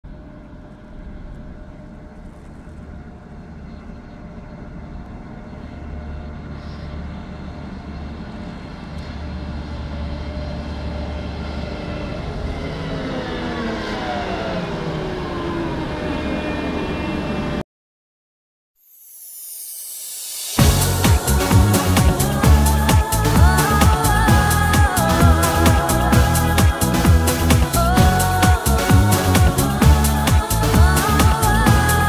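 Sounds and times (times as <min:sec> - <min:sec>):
machine tones sliding downward: 0:09.6 - 0:17.6, 0:18.8 - 0:27.9
combine harvester running: 0:20.6 - 0:32.0.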